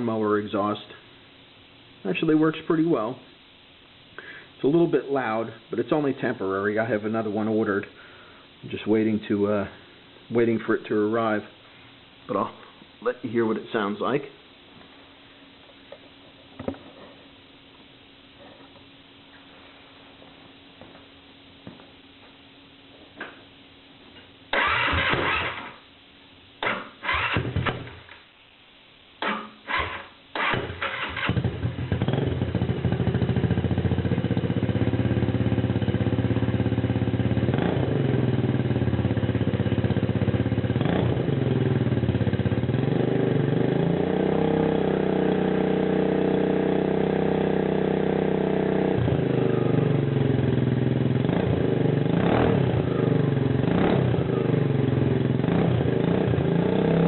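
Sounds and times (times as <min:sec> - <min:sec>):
scooter engine cranking: 0:24.5 - 0:25.8, 0:26.6 - 0:27.8, 0:29.2 - 0:31.9
scooter engine running and revving: 0:31.3 - 0:57.0.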